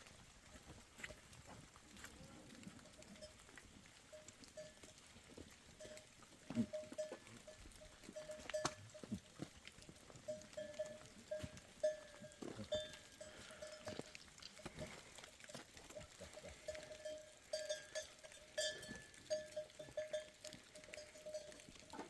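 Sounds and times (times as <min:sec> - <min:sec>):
livestock bells clinking: 0:02.8 - 0:03.4, 0:04.1 - 0:05.1, 0:05.8 - 0:09.3, 0:10.0 - 0:22.0.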